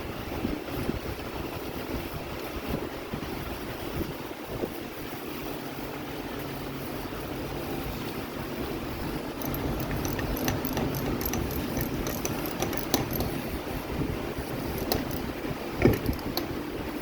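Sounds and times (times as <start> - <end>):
steady mechanical hum: 0.0 - 17.0
small metallic clicks and taps: 9.4 - 13.5, 14.7 - 16.6.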